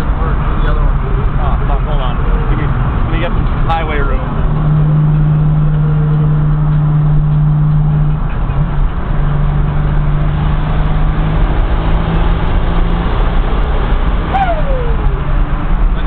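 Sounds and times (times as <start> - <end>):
car engine droning: 0.0 - 16.0
road noise: 0.0 - 16.0
short falling whistle: 14.3 - 15.2.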